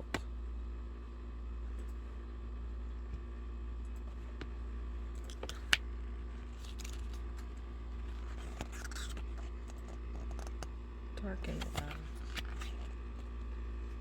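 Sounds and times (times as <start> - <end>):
steady low hum: 0.0 - 14.0
paper rustling: 6.5 - 7.4, 8.1 - 10.5, 11.4 - 13.3.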